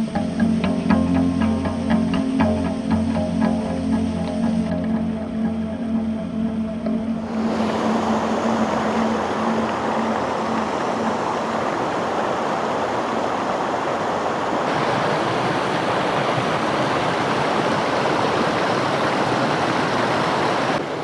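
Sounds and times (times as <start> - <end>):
creek water rushing over rocks: 7.2 - 21.0.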